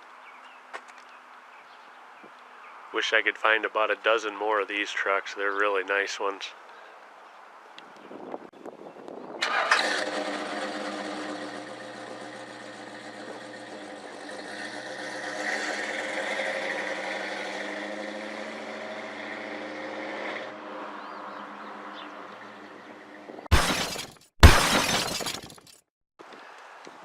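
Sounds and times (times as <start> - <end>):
engine idling: 9.4 - 14.8
pickup truck engine starting: 9.4 - 18.5.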